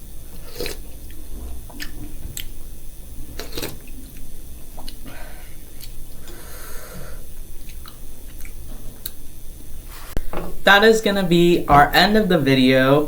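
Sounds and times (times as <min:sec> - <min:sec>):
person chewing noodles: 0:00.3 - 0:02.6, 0:03.3 - 0:06.4.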